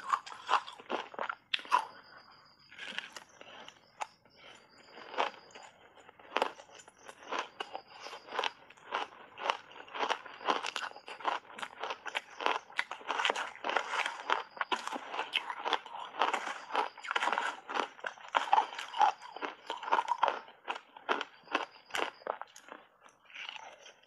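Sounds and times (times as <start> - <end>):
crunching shaved ice: 0.0 - 24.0.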